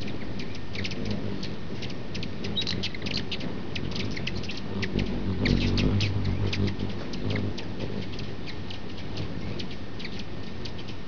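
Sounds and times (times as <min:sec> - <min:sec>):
high bird chirps: 0:02.2 - 0:08.8, 0:09.4 - 0:11.0
low rumble: 0:04.0 - 0:08.1.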